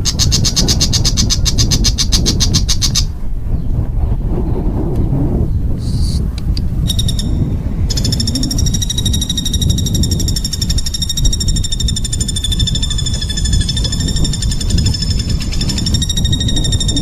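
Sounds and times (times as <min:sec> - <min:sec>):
songbird rapid harsh trill: 0:00.0 - 0:03.1, 0:06.9 - 0:17.0.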